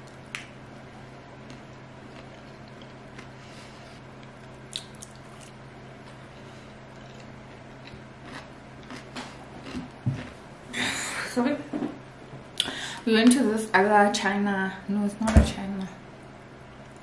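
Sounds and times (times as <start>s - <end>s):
steady low hum: 0.0s - 17.0s
person chewing: 1.4s - 10.4s.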